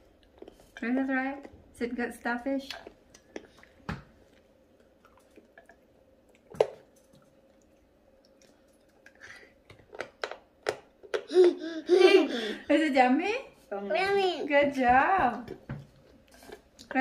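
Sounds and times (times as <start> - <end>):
chewing chocolate: 2.7 - 11.1.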